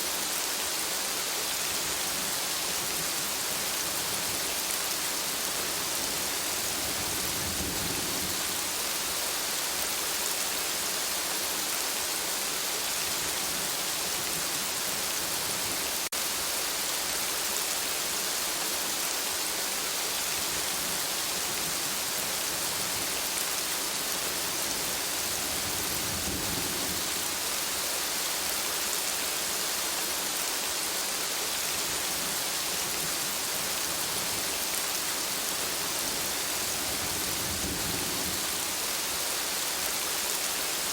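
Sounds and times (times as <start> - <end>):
steady rain: 0.0 - 40.9
thunder rumbling: 36.6 - 38.6.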